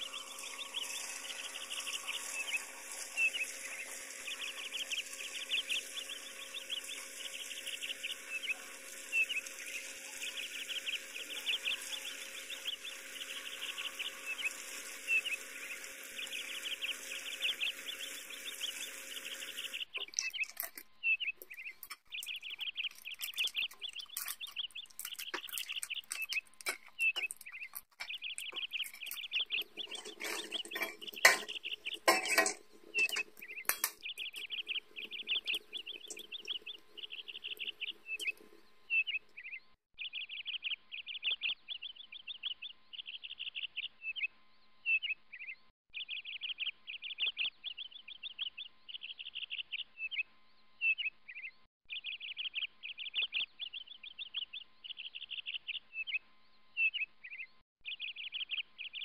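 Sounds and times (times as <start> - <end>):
deep-frying sizzle: 0.0 - 20.8, 21.4 - 39.2
small bird singing: 0.0 - 59.0
spatula scraping frying pan: 22.8 - 36.6.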